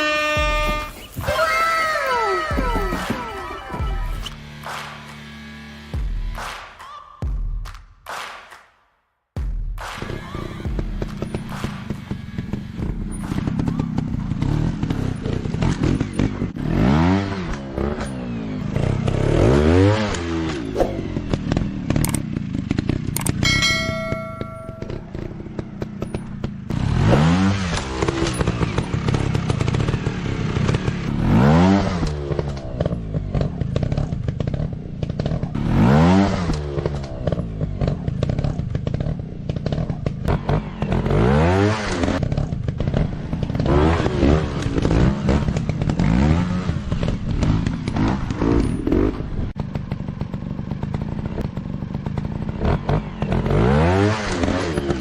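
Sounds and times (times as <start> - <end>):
dirt bike engine revving: 0.0 - 6.0, 10.0 - 55.0.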